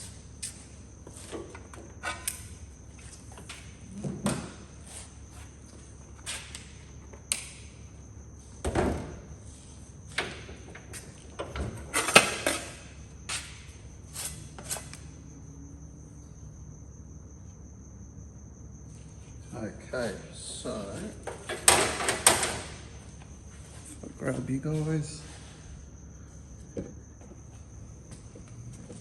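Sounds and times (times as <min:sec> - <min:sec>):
tools and metal clattering: 0:10.1 - 0:12.8, 0:21.2 - 0:22.8.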